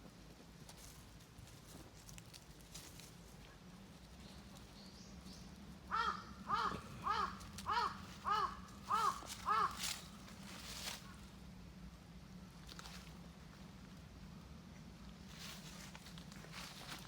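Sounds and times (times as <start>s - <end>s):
animal calls: 5.9s - 10.2s.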